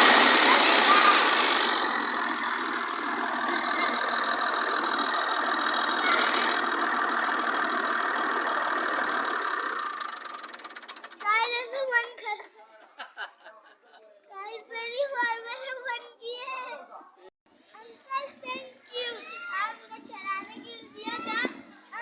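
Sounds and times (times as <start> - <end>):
tractor engine running: 0.0 - 11.6.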